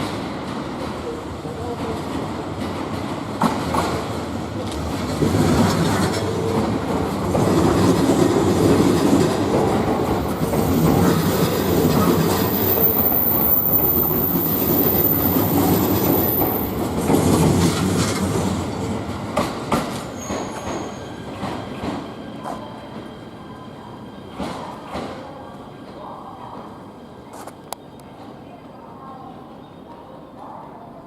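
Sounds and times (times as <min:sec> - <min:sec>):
train wheels rumbling on rail: 0:00.0 - 0:29.0
high wheel squeal: 0:20.2 - 0:21.3.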